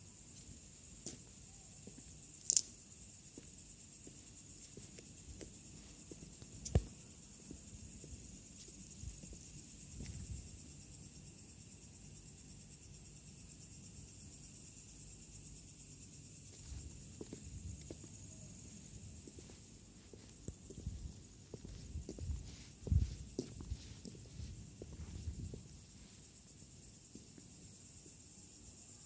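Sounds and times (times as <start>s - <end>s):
crickets chirring: 0.0s - 29.0s
faint low thumps: 20.1s - 25.8s.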